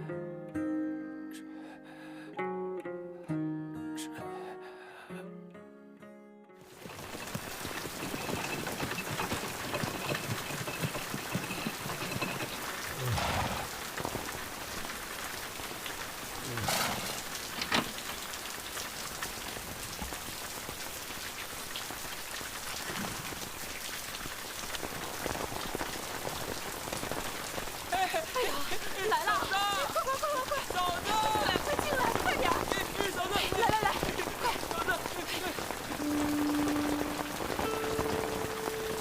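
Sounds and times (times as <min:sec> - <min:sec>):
rain falling: 0:06.6 - 0:39.0.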